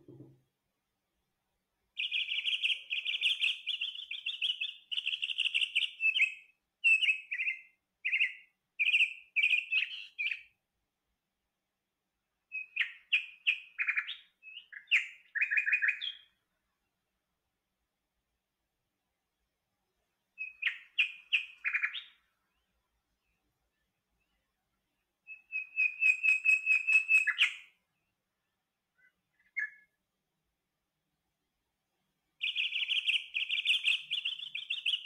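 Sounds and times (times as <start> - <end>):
songbird singing: 1.8 - 10.6, 12.4 - 17.1, 20.0 - 30.2, 32.2 - 35.0.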